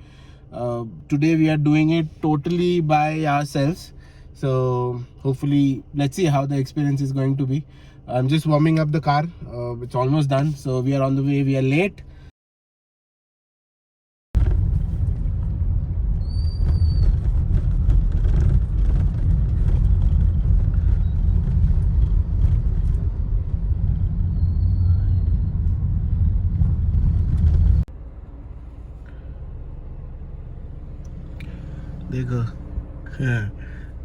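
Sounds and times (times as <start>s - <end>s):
car road and engine rumble: 0.0s - 12.3s, 14.4s - 34.0s
quiet steady hum: 28.0s - 34.0s.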